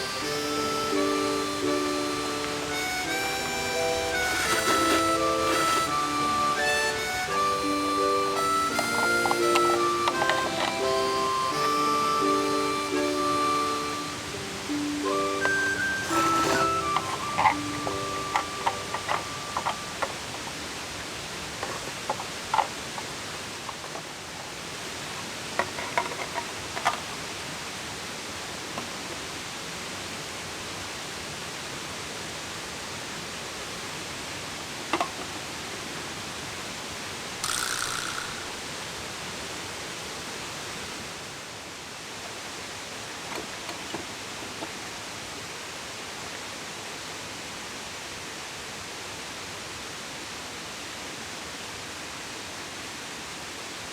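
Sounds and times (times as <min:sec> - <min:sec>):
water rushing: 0:00.0 - 0:25.6.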